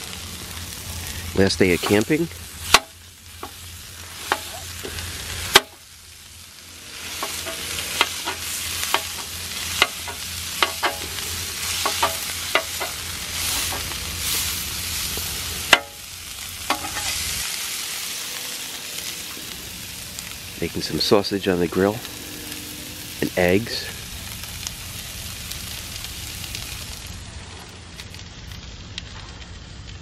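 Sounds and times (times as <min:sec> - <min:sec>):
food sizzling on a grill: 0:00.0 - 0:30.0
utensil knocking on grill: 0:02.7 - 0:03.6, 0:05.5 - 0:05.8, 0:07.2 - 0:11.1, 0:11.8 - 0:13.9, 0:15.7 - 0:16.0, 0:16.7 - 0:17.1.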